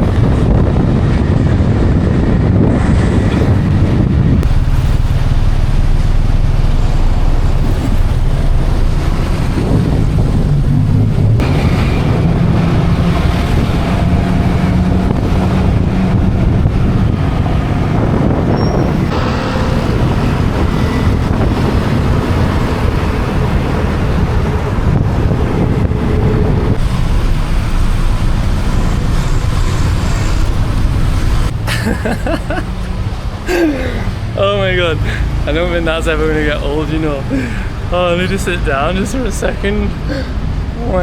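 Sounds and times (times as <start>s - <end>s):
motorcycle engine: 0.0s - 31.6s
wind buffeting microphone: 0.0s - 33.5s.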